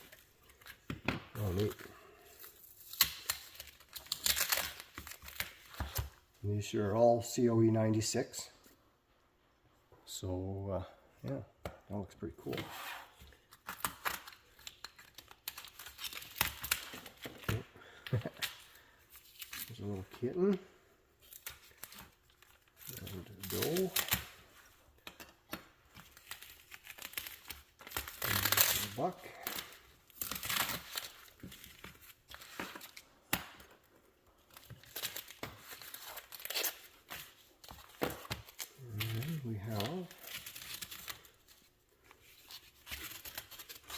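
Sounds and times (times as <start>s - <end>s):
tape and cardboard tearing: 2.5s - 6.2s, 21.2s - 24.4s, 25.0s - 33.8s, 34.5s - 41.6s.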